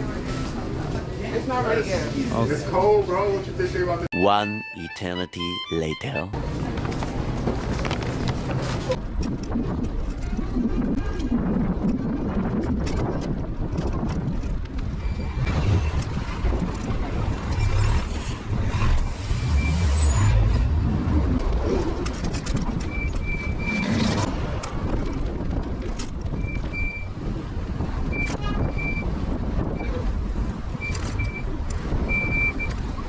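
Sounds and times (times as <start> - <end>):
street traffic noise: 0.0 - 33.0
short high beeps: 4.1 - 6.4
wind buffeting microphone: 6.5 - 19.4, 20.4 - 33.0.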